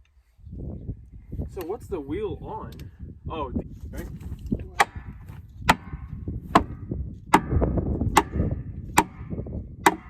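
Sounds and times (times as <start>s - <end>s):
hammer striking metal: 7.3s - 10.0s.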